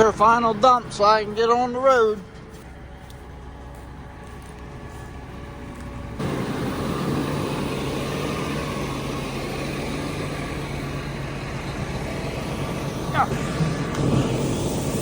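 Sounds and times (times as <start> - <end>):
continuous rushing noise: 0.0 - 15.0
heavy engine running: 0.0 - 15.0.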